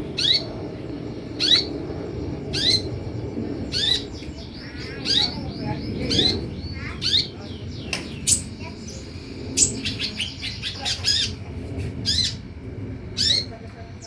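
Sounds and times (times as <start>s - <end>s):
low background hum: 0.0s - 14.0s
sunbird chirps: 1.2s - 11.4s.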